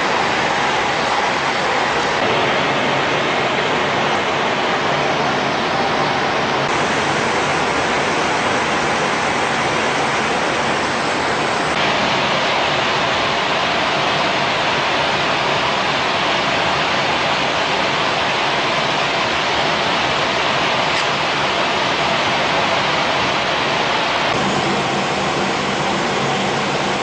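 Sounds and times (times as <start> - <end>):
loud rushing noise: 0.0 - 27.0.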